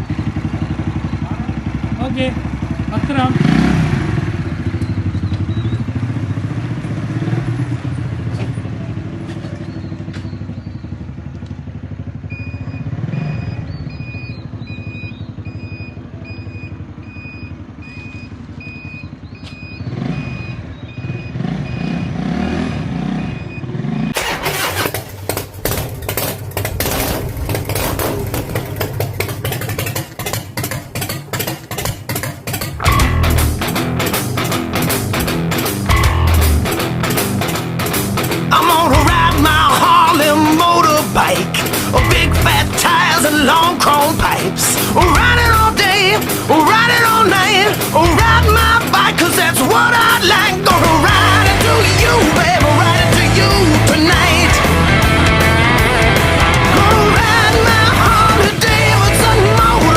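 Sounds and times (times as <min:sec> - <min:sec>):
motorcycle engine rumbling: 0:00.0 - 0:59.9
rapid sharp pulses: 0:24.2 - 0:59.9.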